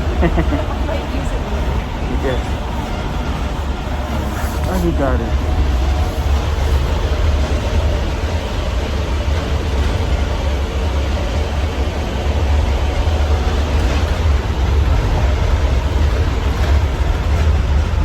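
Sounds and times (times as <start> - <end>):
bus engine rumble: 0.0 - 18.0.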